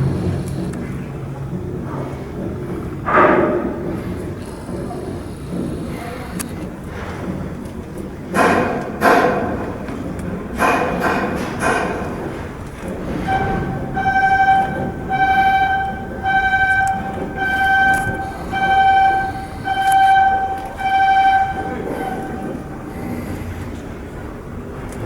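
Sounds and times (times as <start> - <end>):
warning horn beeps: 0.0 - 0.8, 3.1 - 7.0, 13.0 - 24.0
low machinery rumble: 0.0 - 8.4, 9.8 - 25.0.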